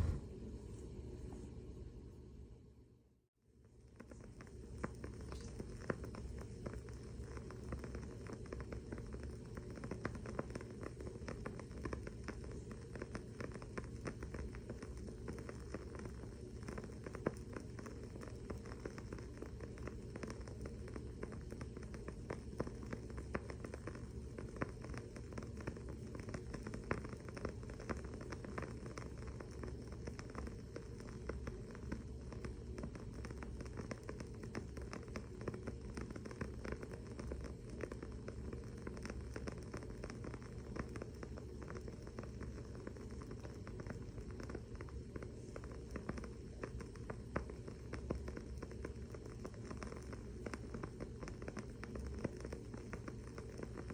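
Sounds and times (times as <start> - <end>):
candle crackling: 0.0 - 1.1, 3.8 - 53.9
low steady hum: 0.0 - 7.8.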